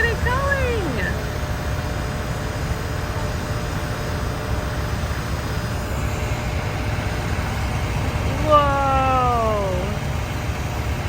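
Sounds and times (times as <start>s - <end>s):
diesel paving machinery rumbling: 0.0s - 11.0s.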